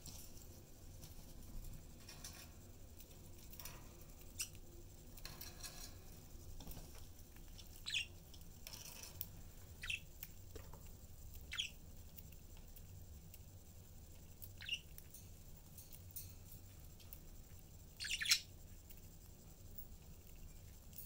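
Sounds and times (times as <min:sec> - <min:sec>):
budgerigars chirping: 0:09.8 - 0:10.0, 0:14.6 - 0:14.8, 0:18.0 - 0:18.5.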